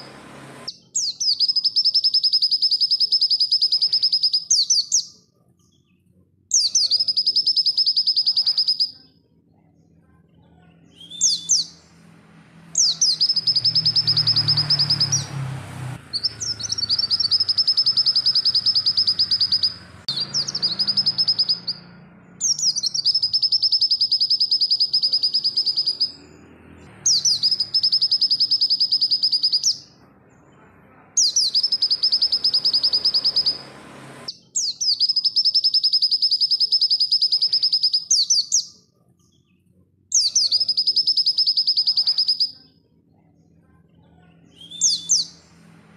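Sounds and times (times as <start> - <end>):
bird trilling chatter: 6.6 - 9.2, 12.8 - 15.3, 16.1 - 26.3, 31.2 - 38.1.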